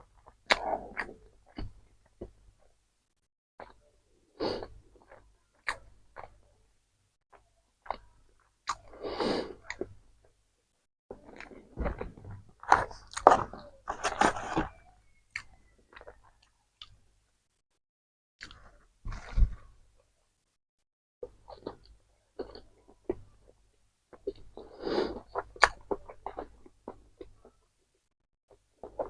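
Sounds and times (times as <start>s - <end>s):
chewing and biting: 11.1s - 14.7s, 21.2s - 27.6s.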